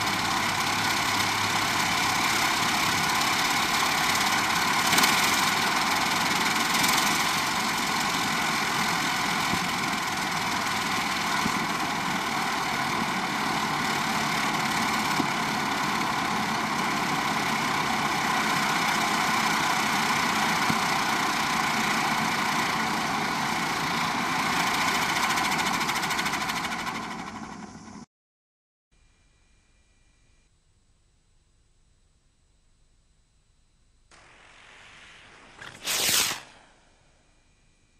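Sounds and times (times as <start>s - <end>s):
ground firework spraying: 0.0s - 24.1s, 34.1s - 37.1s.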